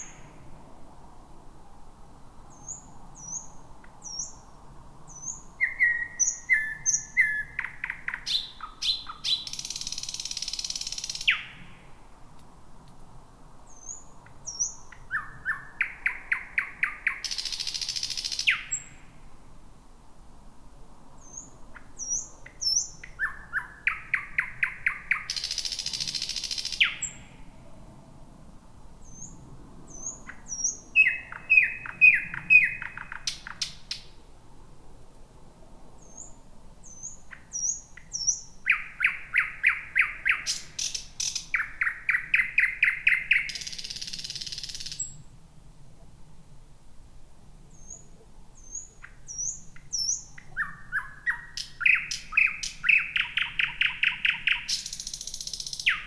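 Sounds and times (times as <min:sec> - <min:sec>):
nightingale singing: 0:02.5 - 0:11.9, 0:13.7 - 0:19.1, 0:21.2 - 0:27.4, 0:29.0 - 0:34.2, 0:36.0 - 0:45.2, 0:47.7 - 0:56.0.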